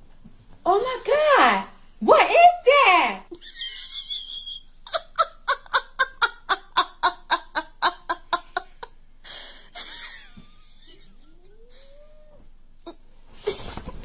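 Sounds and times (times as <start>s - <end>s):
person laughing: 3.3s - 11.8s
rustling: 13.2s - 14.0s.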